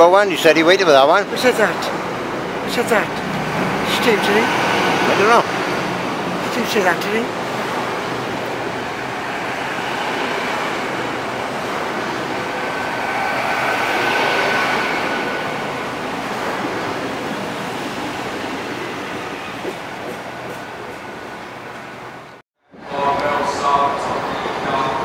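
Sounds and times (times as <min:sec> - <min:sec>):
train wheels rumbling on rail: 0:00.9 - 0:22.3
faint high whine: 0:11.6 - 0:17.4.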